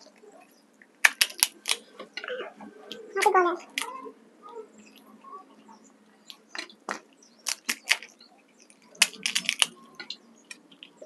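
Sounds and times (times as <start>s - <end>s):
crisp shells crunching while chewed: 0.8s - 3.9s, 6.2s - 11.0s.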